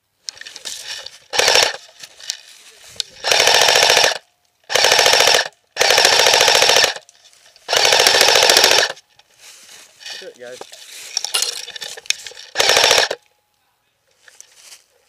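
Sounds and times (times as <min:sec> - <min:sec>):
airsoft rifle full-auto bursts: 0:01.3 - 0:01.8, 0:03.2 - 0:07.0, 0:07.7 - 0:09.0, 0:12.3 - 0:13.2.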